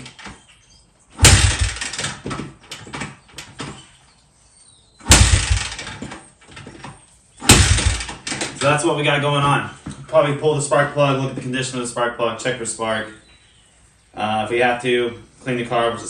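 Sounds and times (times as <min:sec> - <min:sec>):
engine turning over: 0:01.2 - 0:02.4, 0:05.1 - 0:06.1, 0:07.5 - 0:08.6
motorcycle kickstarter thump: 0:01.2 - 0:03.8, 0:05.0 - 0:08.7.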